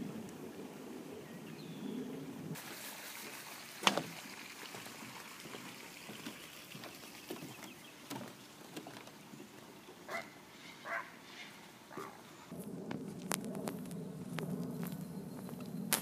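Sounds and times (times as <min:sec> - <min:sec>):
harsh bird calls: 0:09.3 - 0:12.5.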